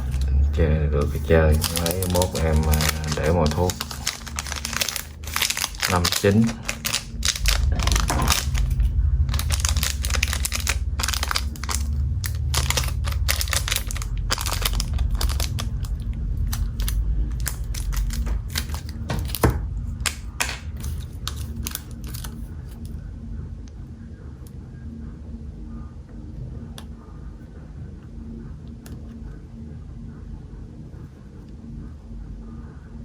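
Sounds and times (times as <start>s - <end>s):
low rumble: 0.0s - 33.0s.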